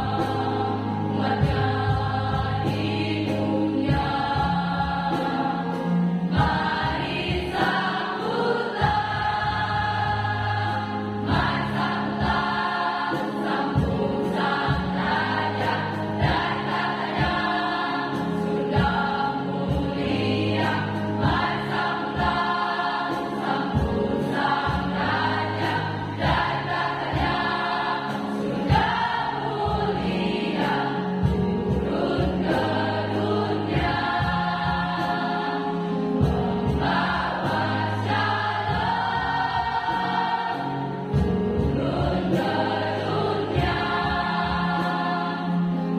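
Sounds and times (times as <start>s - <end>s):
accompaniment with steady beat: 0.0s - 45.9s
choir singing in parts: 0.0s - 45.9s.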